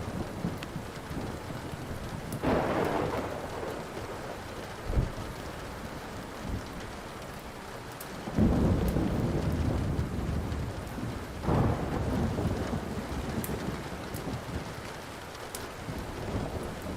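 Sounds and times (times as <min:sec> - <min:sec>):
faint wood fire crackles: 0:00.0 - 0:16.9
steady rain: 0:00.0 - 0:16.9
thunder rumbling: 0:00.0 - 0:16.9.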